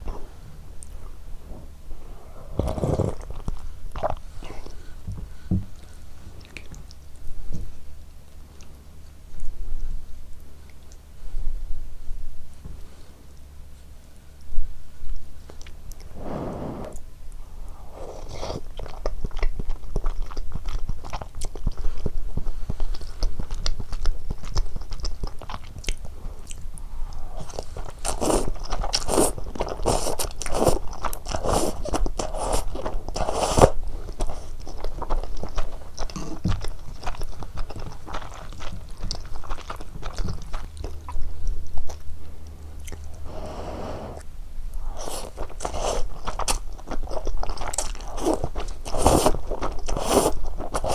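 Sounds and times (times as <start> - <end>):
person chewing food: 17.9 - 50.9
wet mouth clicks and crunches: 44.8 - 50.9.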